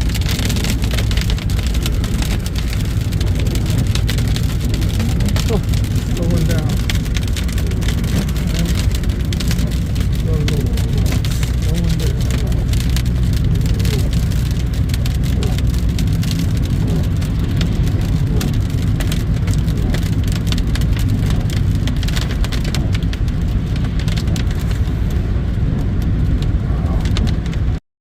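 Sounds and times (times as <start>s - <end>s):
car rumbling on road: 0.0s - 27.8s
hail pelting car roof: 0.0s - 27.8s.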